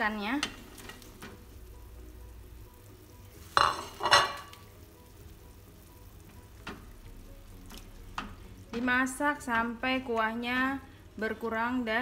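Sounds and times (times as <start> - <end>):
broth simmering: 0.0 - 12.0
wok lid clinking on cookware: 3.6 - 4.6.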